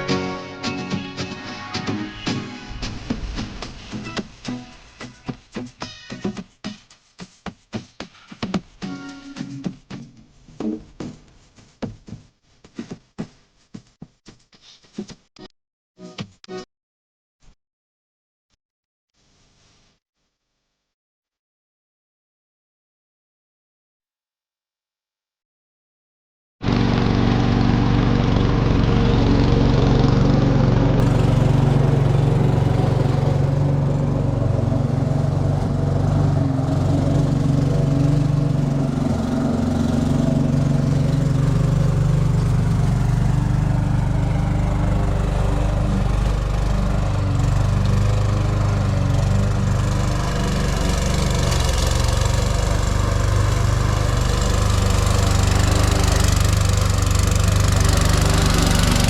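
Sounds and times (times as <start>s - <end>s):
lawn mower engine running: 26.6s - 59.0s.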